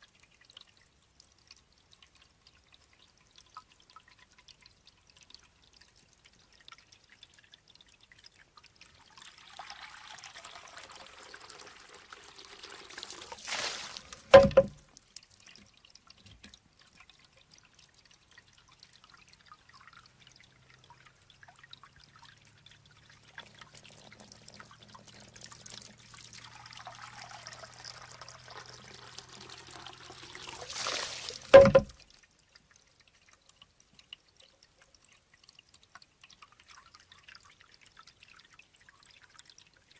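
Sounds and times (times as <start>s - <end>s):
water trickling and pouring: 0.0s - 39.9s
hollow bamboo knock on stone: 14.3s - 14.8s, 31.5s - 32.0s.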